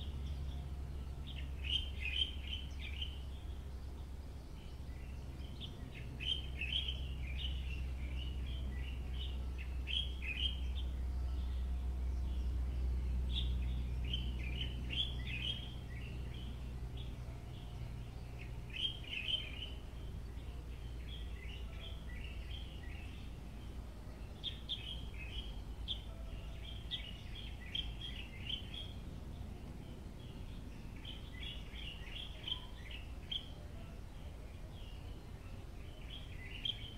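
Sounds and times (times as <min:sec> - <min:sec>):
low steady rumble: 0:00.0 - 0:36.9
small birds chirping: 0:00.0 - 0:36.9.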